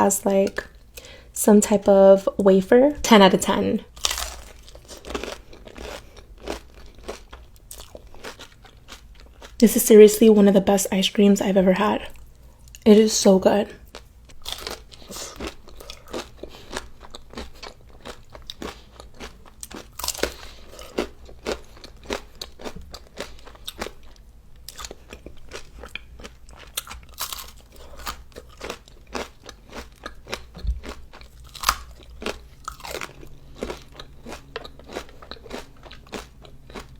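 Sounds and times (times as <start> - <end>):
crunching and chewing ice cream: 4.0 - 9.6, 13.8 - 36.9.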